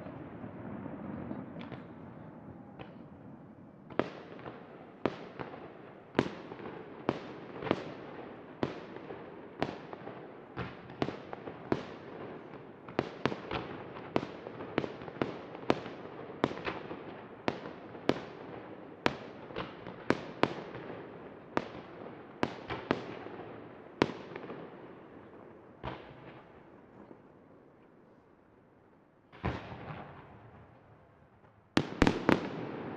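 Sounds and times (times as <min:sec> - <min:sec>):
fireworks crackle and rumble: 0:00.0 - 0:28.3, 0:29.2 - 0:32.9
firework bangs with echo: 0:31.8 - 0:32.9.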